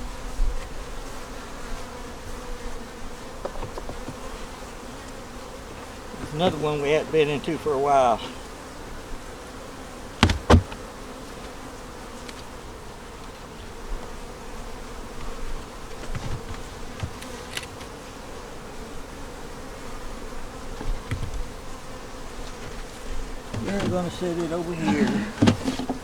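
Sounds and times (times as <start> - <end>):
honey bees buzzing: 0.0 - 26.0
knocks on wooden hive boxes: 3.4 - 4.3, 10.2 - 10.9, 15.2 - 17.4, 20.8 - 21.5, 23.5 - 26.0.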